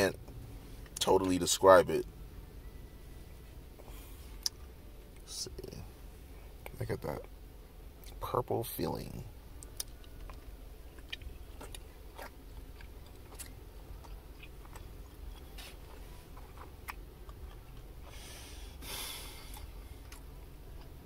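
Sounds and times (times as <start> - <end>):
low steady hum: 0.0 - 21.0
soft chewing: 9.6 - 18.2, 19.4 - 21.0.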